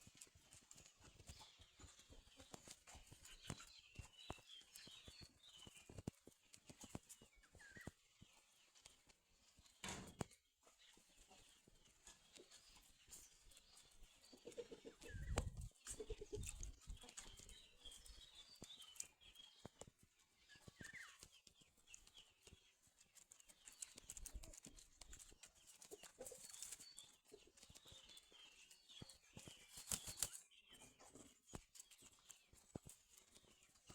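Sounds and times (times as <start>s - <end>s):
chickens clucking: 0.2s - 3.8s, 9.9s - 19.1s, 23.7s - 28.7s, 29.4s - 32.2s.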